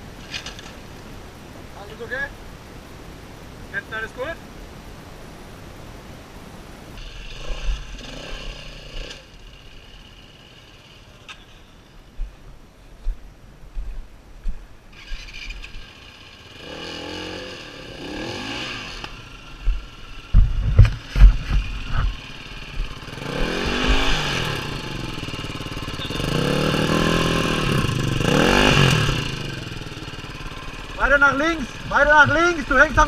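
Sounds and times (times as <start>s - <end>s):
dirt bike engine revving: 7.0s - 11.5s, 14.9s - 33.0s
heavy thumps: 19.6s - 24.2s.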